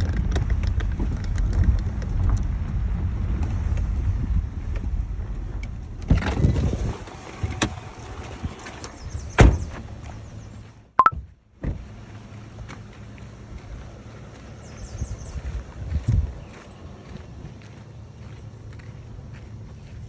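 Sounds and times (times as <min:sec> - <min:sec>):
wind noise: 0:00.0 - 0:07.0, 0:14.9 - 0:16.6
vehicle rumble: 0:00.0 - 0:20.0.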